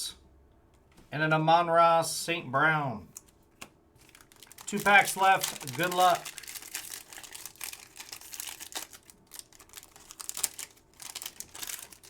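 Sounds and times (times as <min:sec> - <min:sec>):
foil wrapper tearing and crinkling: 0:04.0 - 0:12.0.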